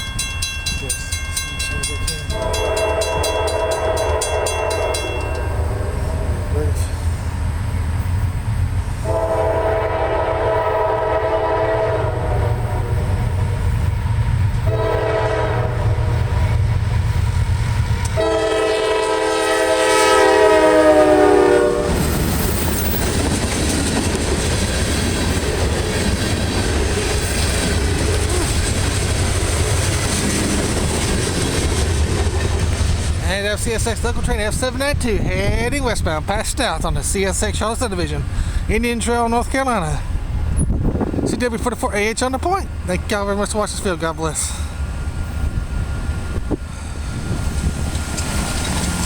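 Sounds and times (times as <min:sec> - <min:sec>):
locomotive engine rumble: 0:00.0 - 0:49.0
train cars rumbling and clattering: 0:00.0 - 0:49.0
locomotive air horn blasts: 0:02.3 - 0:06.8, 0:09.0 - 0:13.2, 0:14.6 - 0:16.6, 0:18.1 - 0:22.2.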